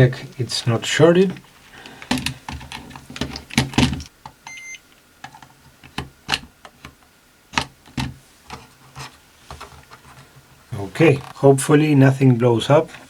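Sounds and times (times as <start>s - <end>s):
multimeter beep: 4.5s - 4.8s.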